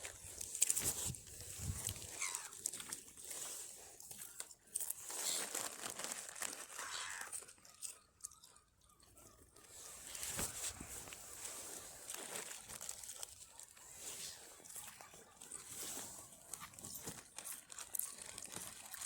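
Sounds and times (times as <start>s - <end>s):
crisp packet crinkling: 0.0s - 9.0s, 9.6s - 19.0s.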